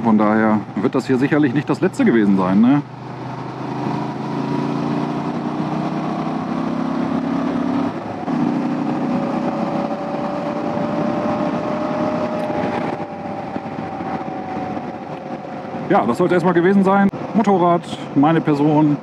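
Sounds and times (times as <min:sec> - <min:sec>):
motorcycle engine accelerating: 0:00.0 - 0:16.6
wind rush on microphone: 0:02.8 - 0:18.0.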